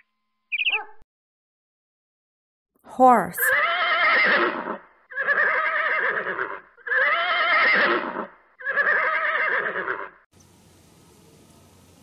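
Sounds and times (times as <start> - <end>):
horse neighing: 3.5 - 10.2
faint hiss: 10.4 - 12.0.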